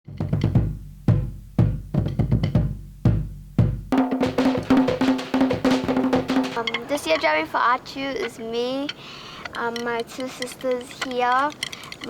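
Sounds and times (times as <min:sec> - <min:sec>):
deep booming drum strokes: 0:00.1 - 0:06.7
fast wooden drum beats: 0:00.1 - 0:06.8.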